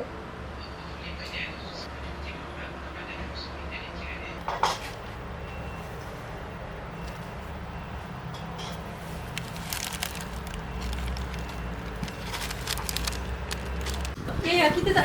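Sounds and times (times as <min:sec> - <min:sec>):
crackling and crinkling clicks: 0:09.2 - 0:14.2.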